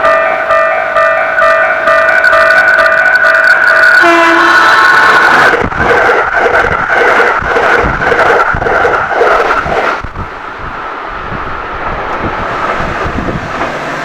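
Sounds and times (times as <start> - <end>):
piano music: 0.0 - 4.5
train running past: 0.0 - 14.0.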